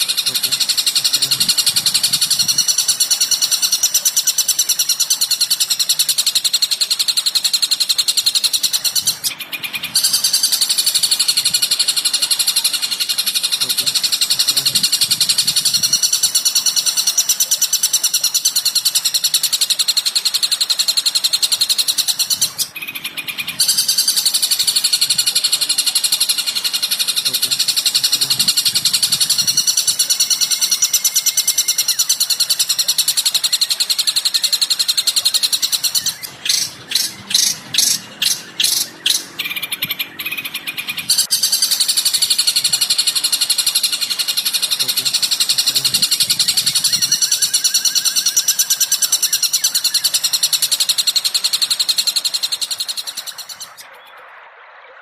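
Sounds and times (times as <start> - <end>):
songbird trills and chirps: 0.0 - 54.2.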